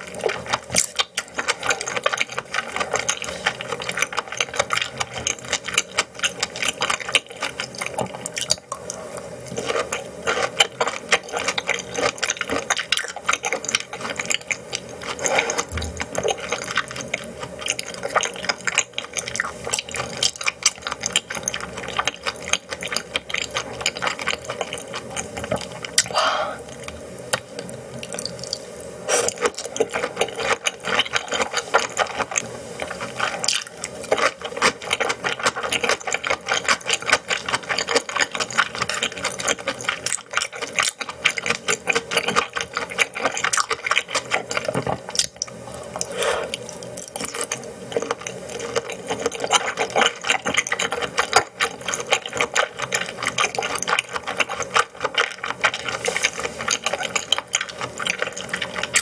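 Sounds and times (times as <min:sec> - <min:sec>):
chewing mouth clicks and smacks: 0:29.2 - 0:59.0.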